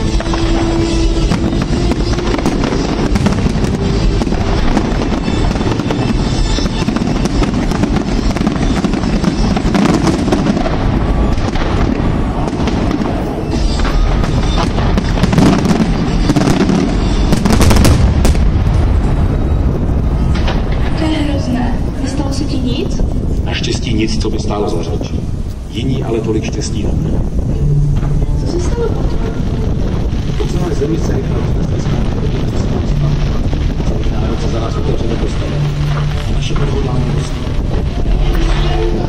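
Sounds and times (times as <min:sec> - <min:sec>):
music: 0:00.0 - 0:11.2, 0:26.7 - 0:39.0
fireworks booms and crackling: 0:00.0 - 0:39.0.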